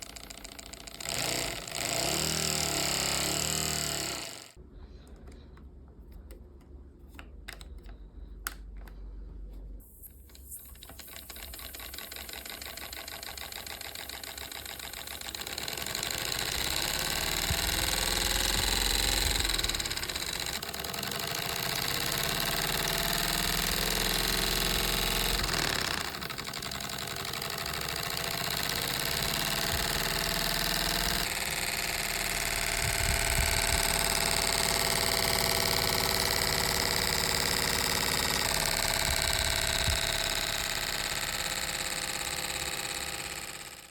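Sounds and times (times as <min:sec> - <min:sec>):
pneumatic engine clattering: 0:00.0 - 0:04.6, 0:09.9 - 0:43.9
clicks: 0:05.0 - 0:09.1.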